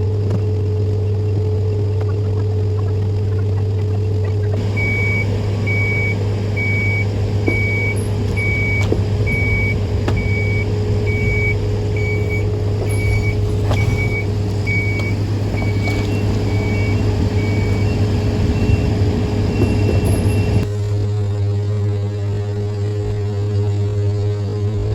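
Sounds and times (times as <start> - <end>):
low machinery drone: 0.0 - 20.9
vehicle backup alarm beeping: 4.5 - 20.7.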